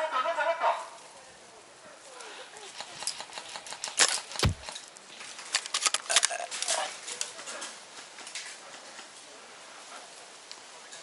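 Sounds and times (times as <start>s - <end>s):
sharp knock: 4.4s - 4.7s.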